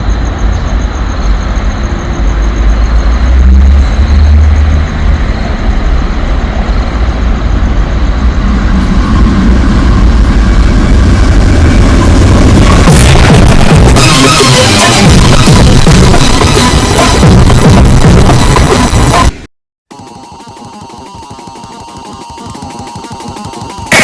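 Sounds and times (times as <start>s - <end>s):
train rumbling: 0.0s - 19.4s.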